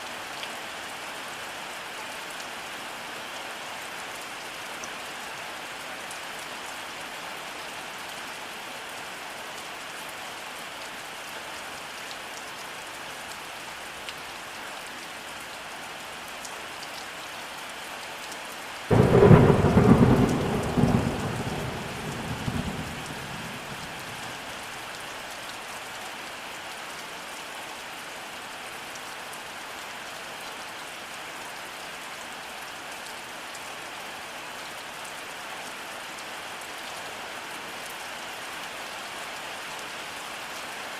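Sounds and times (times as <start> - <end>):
steady rainfall: 0.0 - 40.9
thunderclap rumbling: 18.9 - 24.5.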